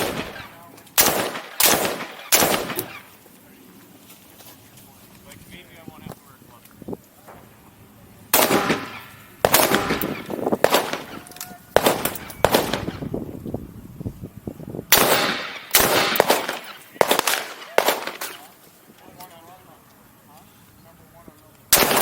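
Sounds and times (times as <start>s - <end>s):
rifle shots with echo: 0.0s - 3.1s, 8.3s - 13.1s, 14.9s - 18.5s, 21.7s - 22.0s.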